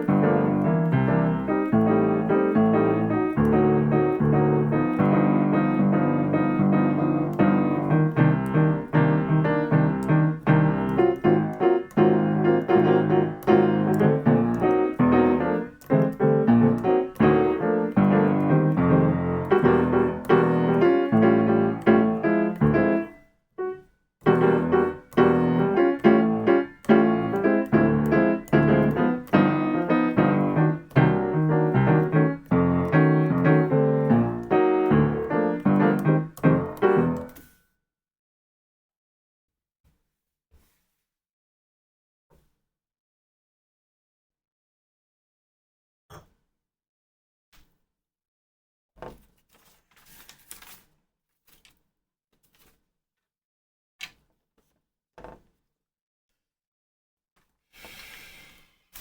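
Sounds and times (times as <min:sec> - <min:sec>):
solo jazz piano chords: 0:00.0 - 0:37.4.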